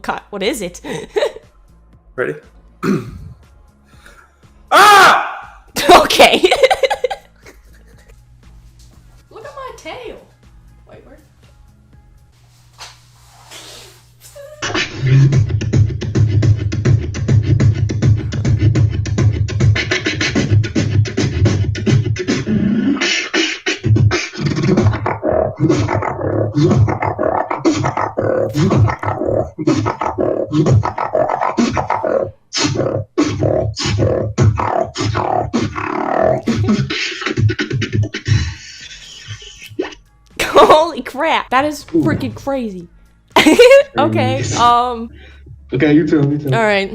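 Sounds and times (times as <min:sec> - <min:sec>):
person beatboxing: 0:14.3 - 0:38.6
deep held bass hum: 0:14.4 - 0:22.6, 0:43.8 - 0:46.9.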